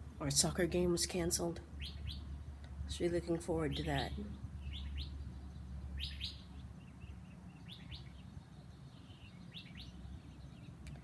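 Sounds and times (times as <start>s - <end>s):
low steady hum: 0.0s - 11.0s
small bird chirping: 1.8s - 2.4s, 3.6s - 11.0s.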